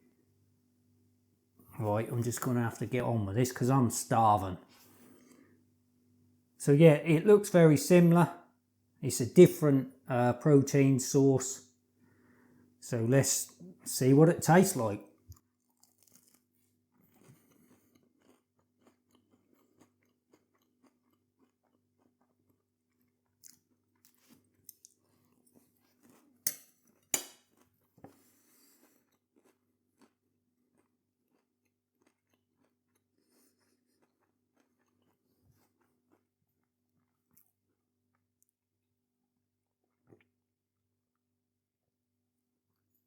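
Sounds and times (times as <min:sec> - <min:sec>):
person chewing and crunching food: 0:13.3 - 0:38.6, 0:39.6 - 0:40.4.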